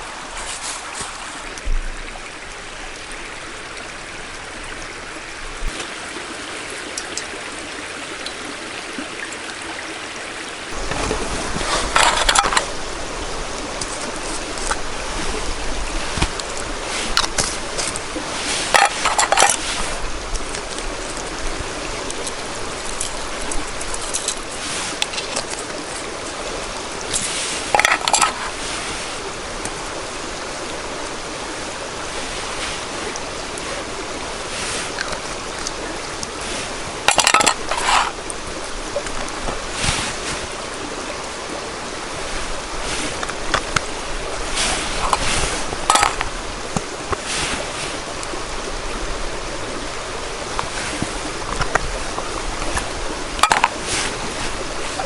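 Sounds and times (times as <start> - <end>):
running water rushing: 0.0 - 55.0
short rustles or clatters: 10.8 - 12.8, 16.1 - 20.0, 36.4 - 38.2, 44.5 - 46.3.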